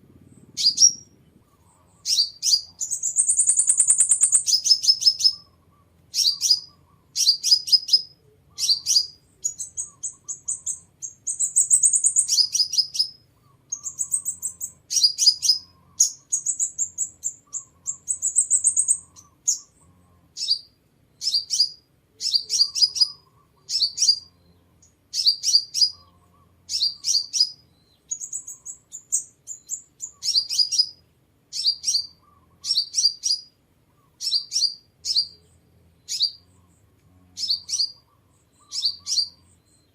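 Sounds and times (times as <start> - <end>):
sunbird high thin chirps: 1.8 - 5.5.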